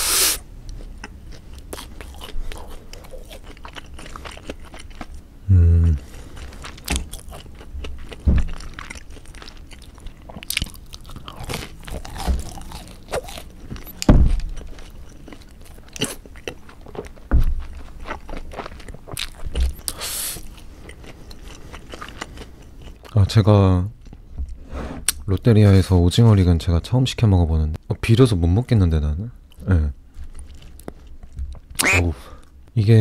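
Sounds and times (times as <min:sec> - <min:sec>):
crunching fried squid: 0:00.8 - 0:05.3, 0:06.0 - 0:23.2, 0:30.2 - 0:32.4.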